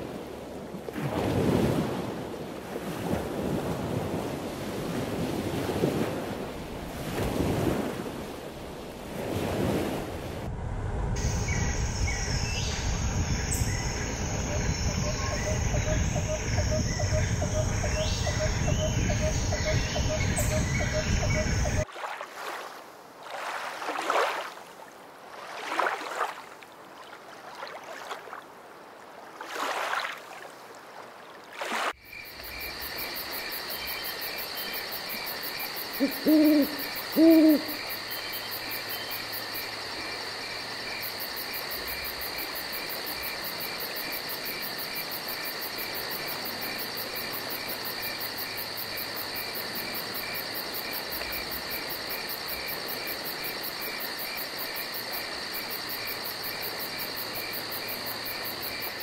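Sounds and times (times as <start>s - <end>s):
gusty wind: 0.0s - 21.8s
water at lakeshore: 0.0s - 59.0s
insects chirring: 11.2s - 21.8s, 32.0s - 59.0s
owl-like hoots: 35.9s - 37.8s.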